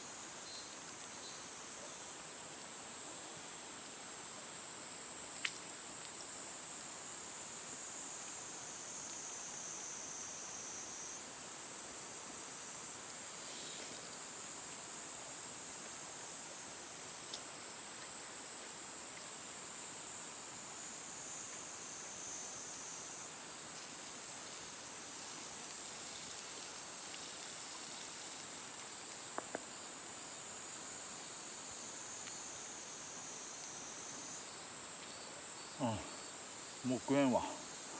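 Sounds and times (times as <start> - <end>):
insects trilling: 0.0 - 2.2, 20.8 - 37.9.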